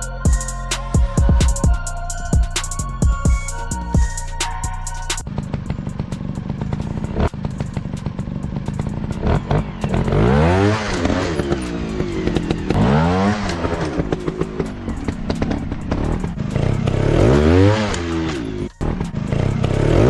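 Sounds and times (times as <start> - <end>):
dirt bike engine revving: 5.2 - 20.0.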